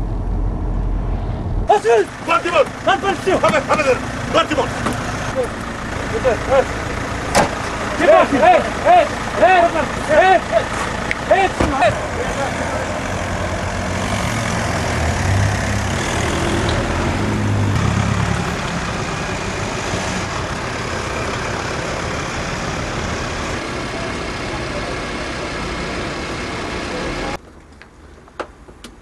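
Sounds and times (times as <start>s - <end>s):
car engine rumbling: 0.0s - 29.0s.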